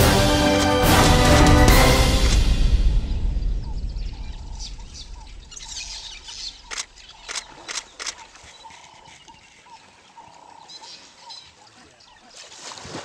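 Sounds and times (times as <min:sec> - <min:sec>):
music: 0:00.0 - 0:04.8
wild birds chirping: 0:02.5 - 0:12.5
sharp clicks: 0:05.8 - 0:08.5.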